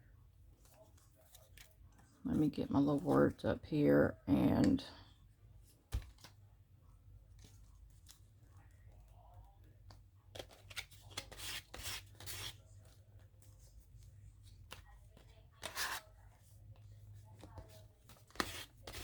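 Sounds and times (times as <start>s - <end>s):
paper rustling: 17.2s - 19.0s.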